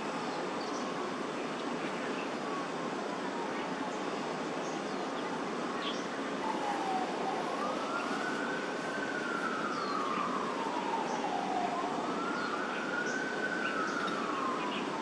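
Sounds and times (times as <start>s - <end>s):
steady background noise: 0.0s - 15.0s
emergency vehicle siren wailing: 6.3s - 15.0s.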